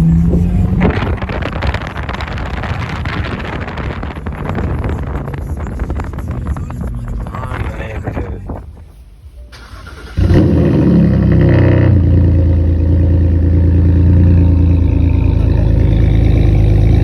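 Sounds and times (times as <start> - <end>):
engine starting and running: 9.4 - 17.0.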